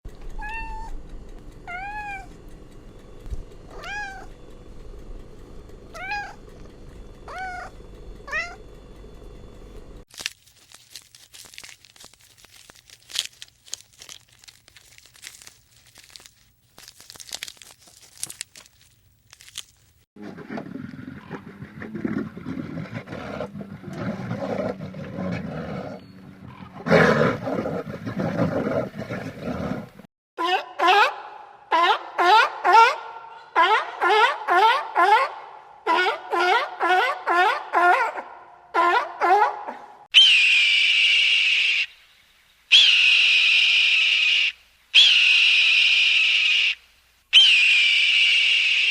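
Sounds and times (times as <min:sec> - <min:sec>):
cat meowing: 0:00.4 - 0:00.9, 0:01.7 - 0:02.3, 0:03.7 - 0:04.3, 0:06.0 - 0:06.4
clicking and crackling: 0:09.8 - 0:20.0.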